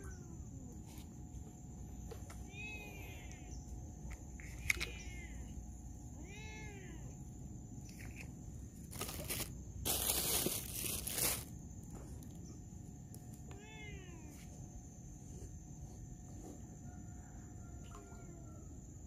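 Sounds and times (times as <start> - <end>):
rough rustling noise: 8.8 - 11.6.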